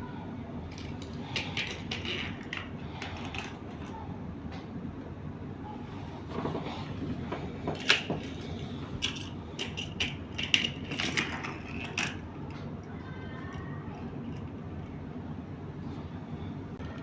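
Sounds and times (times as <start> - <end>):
plastic toy pieces clicking: 9.0 - 12.2.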